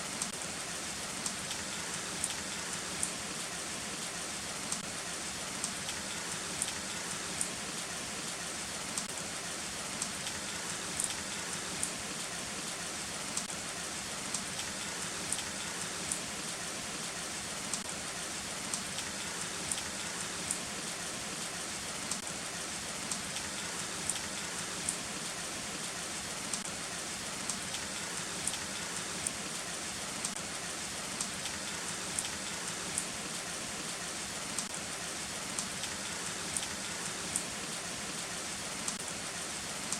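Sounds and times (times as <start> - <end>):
heavy rain falling: 0.0 - 39.9
raindrops tapping close by: 27.4 - 38.2.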